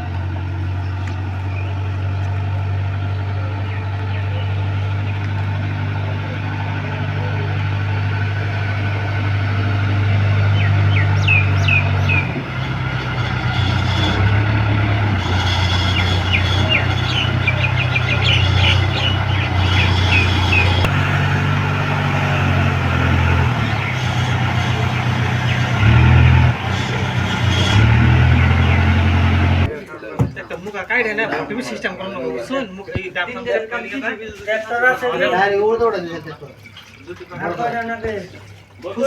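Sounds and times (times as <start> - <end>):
heavy diesel engine running: 0.0 - 29.7.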